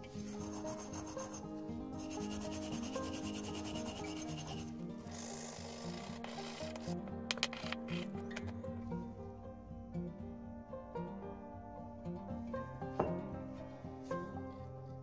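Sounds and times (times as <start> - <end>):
sanding stick rubbing on metal: 0.0 - 1.4, 2.0 - 6.9.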